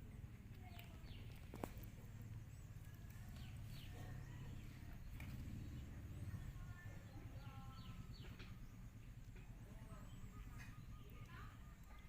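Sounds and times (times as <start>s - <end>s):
birds chirping: 0.0s - 12.0s
low steady rumble: 0.0s - 12.0s.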